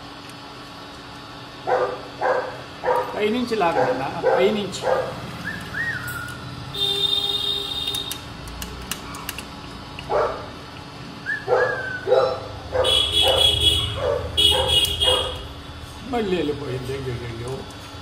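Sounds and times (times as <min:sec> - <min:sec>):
dog barking: 0:01.7 - 0:05.2, 0:10.1 - 0:10.5, 0:11.4 - 0:15.4
high whistle-like calls: 0:05.4 - 0:06.4, 0:11.2 - 0:12.1.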